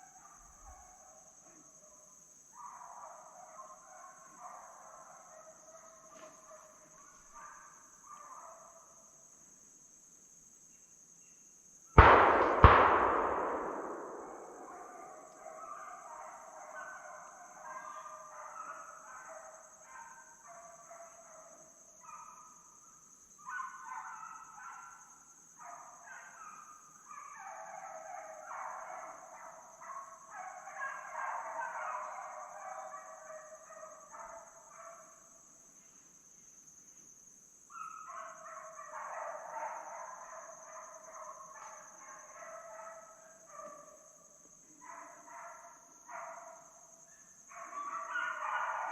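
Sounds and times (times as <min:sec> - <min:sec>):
hounds baying: 0:12.0 - 0:21.6, 0:47.5 - 0:48.9.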